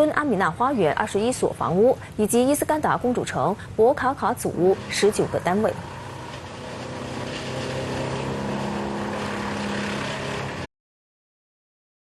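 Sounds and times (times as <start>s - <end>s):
engine humming: 4.6s - 10.7s.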